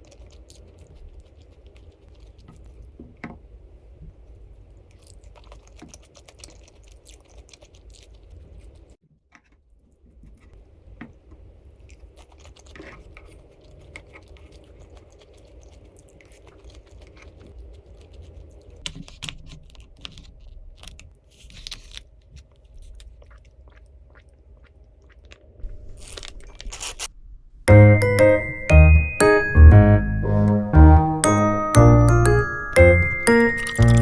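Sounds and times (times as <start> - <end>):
small clicks and crunches: 12.2 - 23.4
piano music: 27.7 - 34.0.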